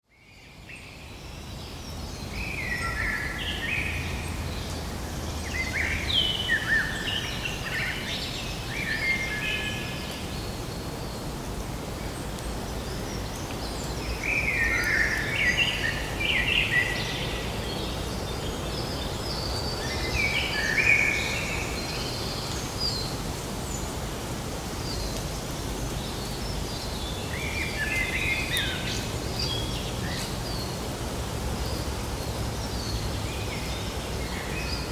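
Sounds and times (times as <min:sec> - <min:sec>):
outdoor background hiss: 0:00.1 - 0:34.9
songbird chirping: 0:24.7 - 0:34.9.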